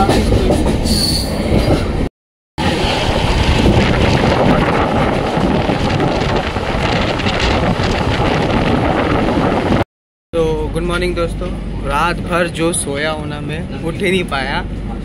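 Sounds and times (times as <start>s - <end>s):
train coach rumbling and rattling: 0.0s - 9.8s, 10.4s - 15.0s
wind rushing on microphone: 1.4s - 9.8s.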